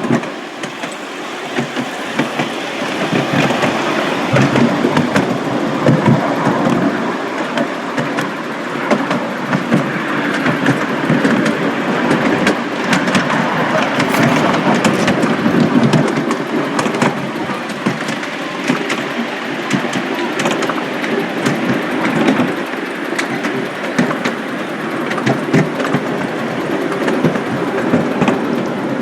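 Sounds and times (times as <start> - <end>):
miniature train running: 0.0 - 29.0.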